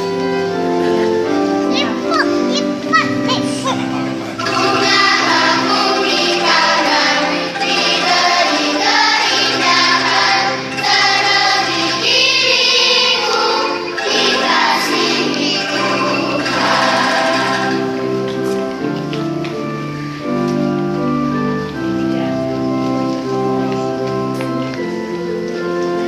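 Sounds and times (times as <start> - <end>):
children's choir singing: 0.0 - 20.0.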